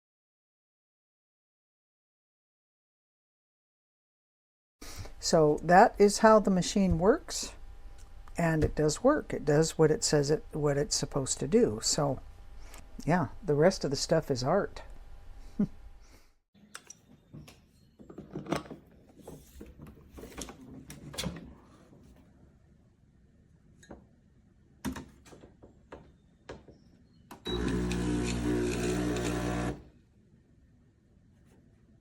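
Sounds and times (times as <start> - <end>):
electric pump buzzing: 27.5 - 29.9.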